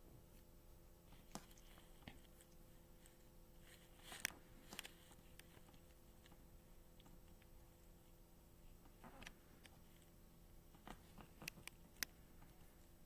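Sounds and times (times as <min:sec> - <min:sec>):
faint clicks: 0:08.8 - 0:12.7.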